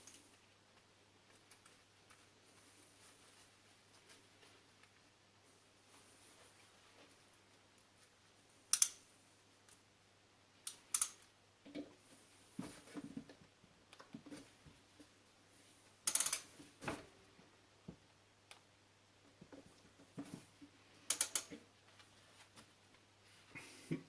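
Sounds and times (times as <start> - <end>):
metal tools clicking and knocking: 16.1 - 16.5, 21.1 - 21.6.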